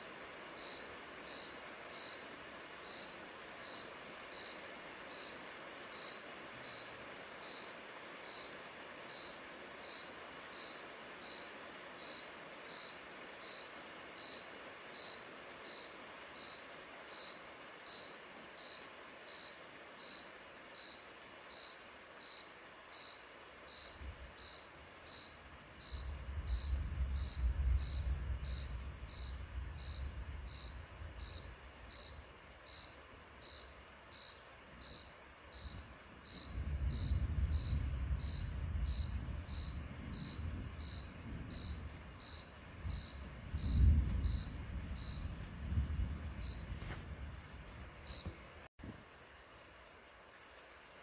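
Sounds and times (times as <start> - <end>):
distant thunder rumbling: 25.7 - 32.8, 35.5 - 48.5.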